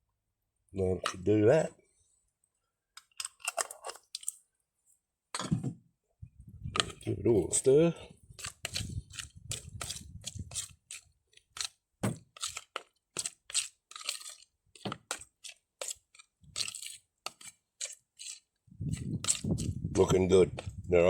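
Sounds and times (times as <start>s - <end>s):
spoon stirring food in a bowl: 3.0s - 4.4s, 6.7s - 20.7s.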